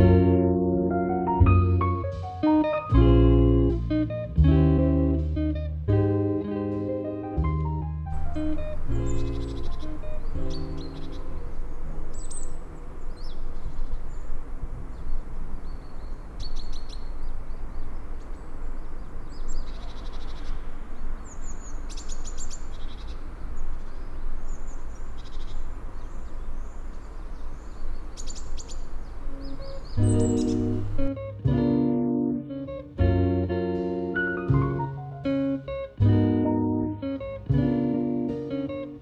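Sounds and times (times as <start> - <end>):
low outdoor rumble: 7.4 - 31.6
birds chirping and trilling: 8.2 - 31.1.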